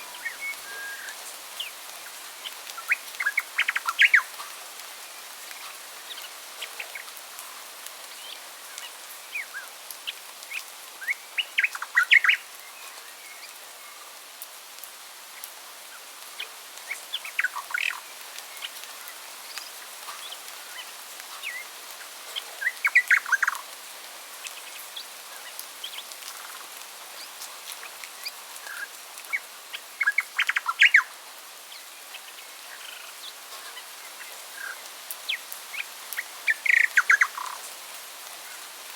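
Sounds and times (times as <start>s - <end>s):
background hiss: 0.0s - 38.9s
birds chirping: 34.2s - 37.6s.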